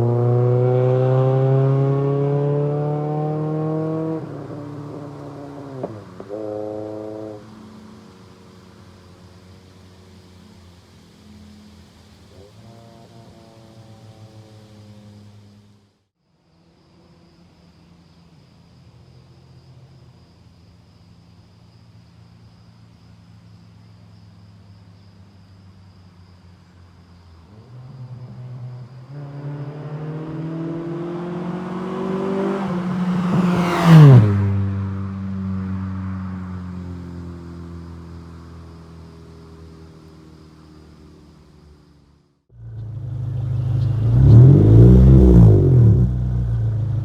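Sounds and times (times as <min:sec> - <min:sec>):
car revving and passing: 0:00.0 - 0:15.9, 0:27.4 - 0:41.4, 0:42.5 - 0:47.0
car exhaust running: 0:42.5 - 0:47.0.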